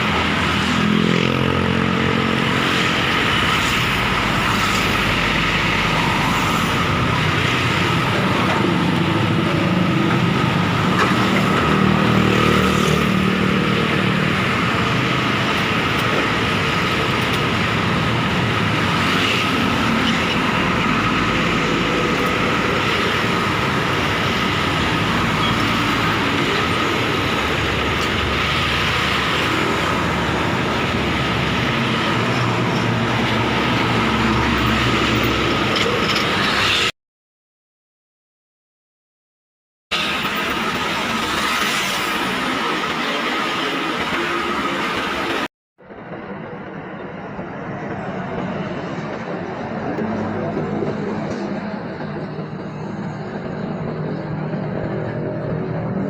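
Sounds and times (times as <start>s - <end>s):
trucks and buses driving past: 0.0s - 36.9s.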